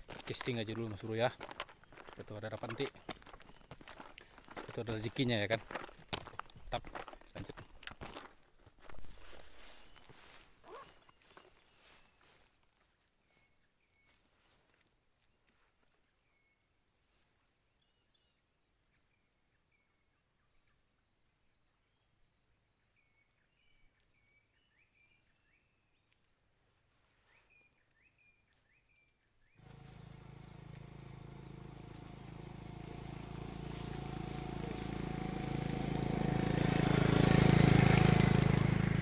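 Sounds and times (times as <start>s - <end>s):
insects droning: 0.0s - 12.4s, 29.6s - 39.0s.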